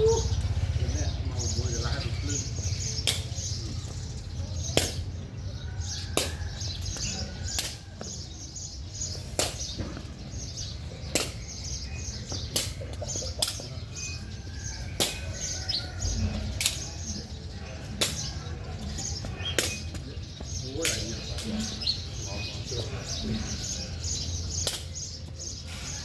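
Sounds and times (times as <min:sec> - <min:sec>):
birds chirping: 0:00.0 - 0:26.0
sharp strikes on object: 0:03.0 - 0:03.4, 0:04.7 - 0:05.1, 0:06.2 - 0:06.4, 0:09.4 - 0:09.9, 0:11.1 - 0:11.6, 0:19.6 - 0:19.9, 0:24.6 - 0:25.1.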